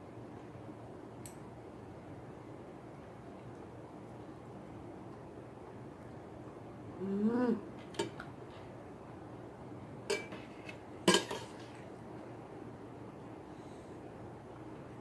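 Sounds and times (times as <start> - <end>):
cutlery clinking against a bowl: 10.1 - 11.8.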